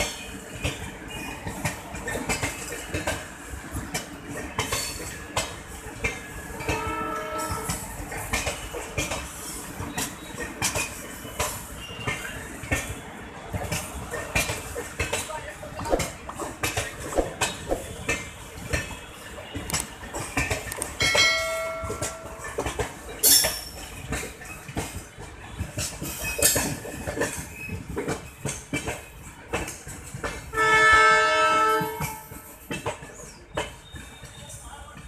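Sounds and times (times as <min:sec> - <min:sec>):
train wheels clattering over rail joints: 0:00.0 - 0:19.0, 0:19.6 - 0:35.0
train horn: 0:06.6 - 0:07.8, 0:30.5 - 0:32.4.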